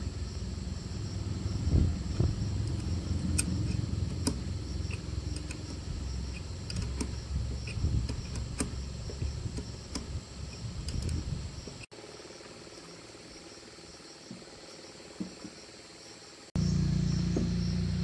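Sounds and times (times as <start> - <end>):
handling noise rumble: 0.0 - 11.9
insects droning: 0.0 - 18.0
sharp clicks and knocks: 2.1 - 11.9.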